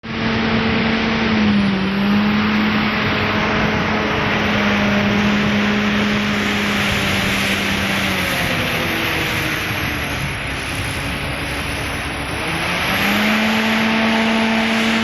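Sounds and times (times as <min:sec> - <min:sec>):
wind rush on microphone: 0:00.0 - 0:15.0.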